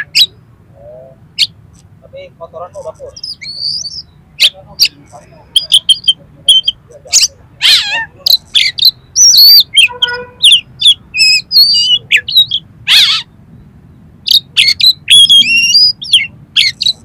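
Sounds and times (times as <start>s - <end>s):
bird singing varied song: 0.0s - 17.0s.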